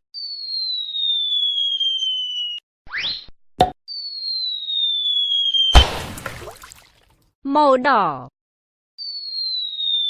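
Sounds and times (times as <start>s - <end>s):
falling whistle tone: 0.2s - 3.3s, 3.9s - 5.9s.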